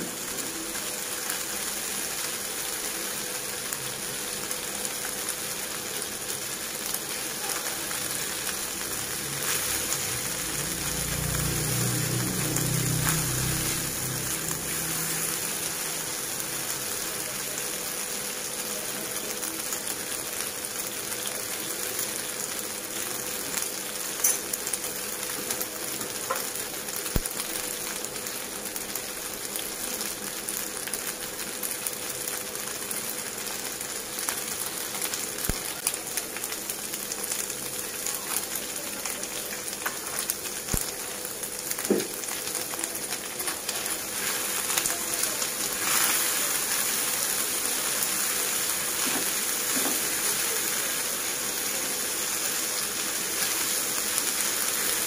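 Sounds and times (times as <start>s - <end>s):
food sizzling in a frying pan: 0.0s - 55.0s.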